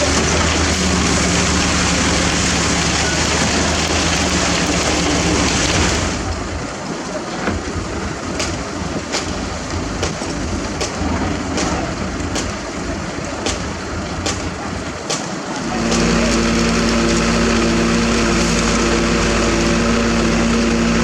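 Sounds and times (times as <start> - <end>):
heavy machinery rumbling: 0.0 - 21.0
small engine running: 15.6 - 21.0.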